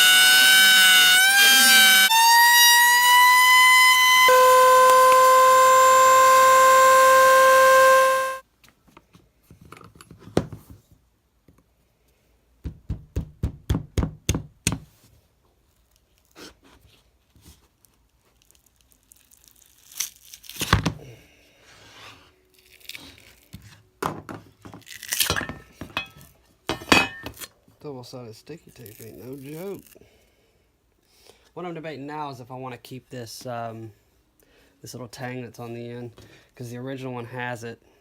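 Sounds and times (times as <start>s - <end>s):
router high whine: 0.0s - 8.4s.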